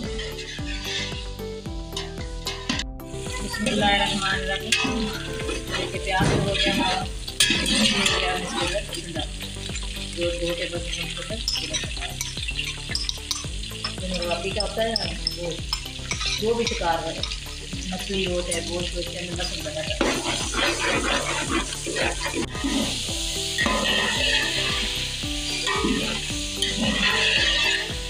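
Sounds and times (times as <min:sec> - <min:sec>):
metal spoon scraping pot: 0:00.0 - 0:01.3, 0:01.9 - 0:09.0, 0:10.8 - 0:17.5, 0:19.4 - 0:23.0, 0:23.6 - 0:28.0
meat frying in hot oil: 0:00.0 - 0:28.0.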